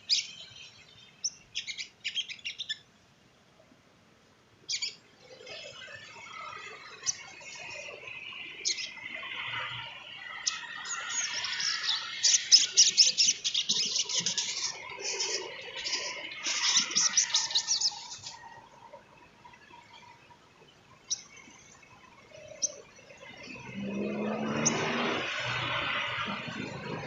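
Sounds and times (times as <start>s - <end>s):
bird chattering song: 0.0s - 2.8s, 4.7s - 5.0s, 8.6s - 9.1s, 10.3s - 18.4s.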